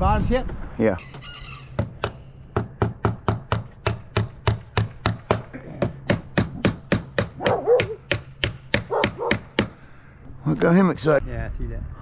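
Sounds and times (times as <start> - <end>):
hammer striking: 1.8 - 9.8.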